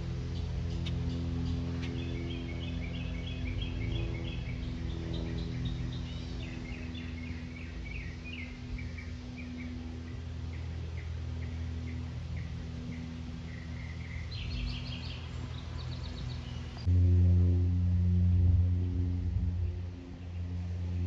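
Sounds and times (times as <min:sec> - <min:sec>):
steady low drone: 0:00.0 - 0:21.0
songbird chirping: 0:00.4 - 0:16.9.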